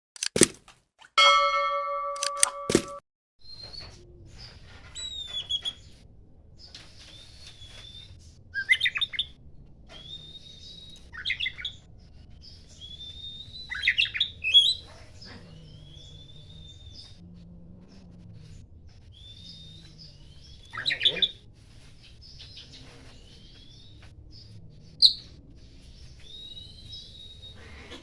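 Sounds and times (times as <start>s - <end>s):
bird rapid chattering: 6.6s - 11.8s, 12.4s - 17.2s, 18.4s - 21.4s
bird whistled notes: 7.8s - 9.3s, 12.8s - 14.8s.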